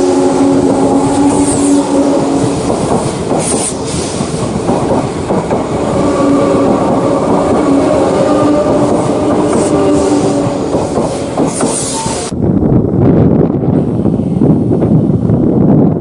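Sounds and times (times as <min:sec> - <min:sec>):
train motor whine: 0:00.0 - 0:12.3
train wheels clattering: 0:00.0 - 0:12.3.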